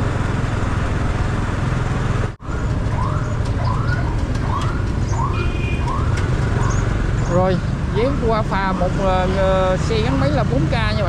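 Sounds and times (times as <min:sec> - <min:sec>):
motorcycle engine rumble: 0:00.0 - 0:11.0.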